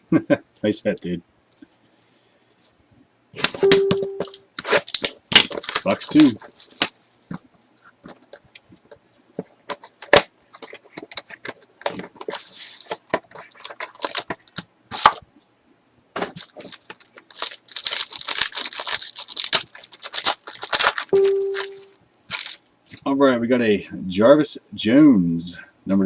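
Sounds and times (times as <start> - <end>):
plastic wrap crinkling: 4.2 - 9.0, 9.7 - 15.1, 16.2 - 23.0.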